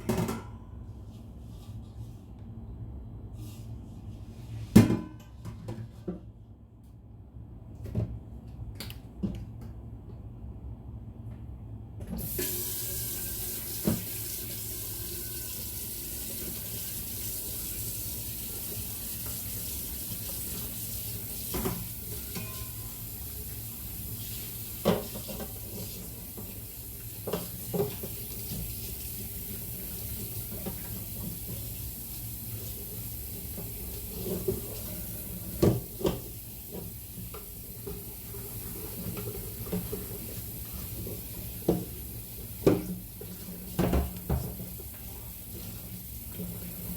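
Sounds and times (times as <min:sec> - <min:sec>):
tap running into sink: 0:12.2 - 0:14.6.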